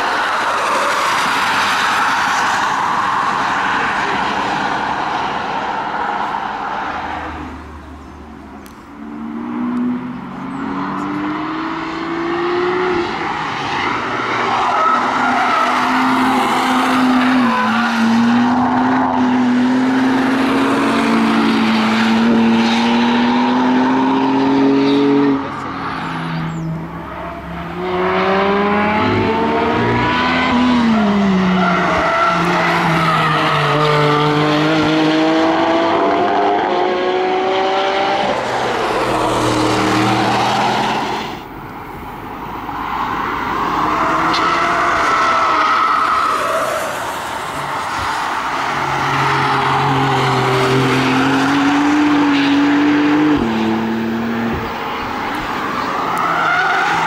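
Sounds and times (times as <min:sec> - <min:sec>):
race car engines passing: 0:00.0 - 0:57.0
car accelerating through gears: 0:09.0 - 0:26.7, 0:27.7 - 0:41.4, 0:46.8 - 0:55.4.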